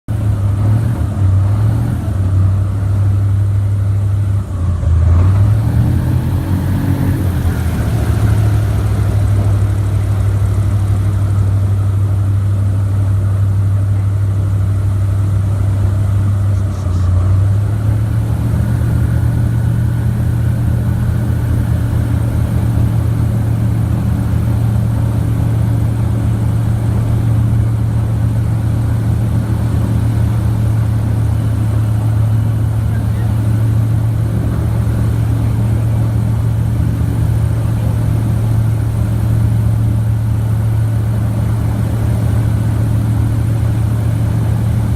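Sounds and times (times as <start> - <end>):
airboat engine and propeller: 0.1 - 44.9.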